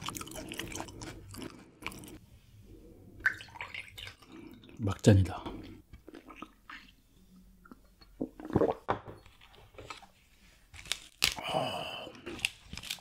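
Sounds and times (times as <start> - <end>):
chewing crunching fish bones: 0.0 - 2.2.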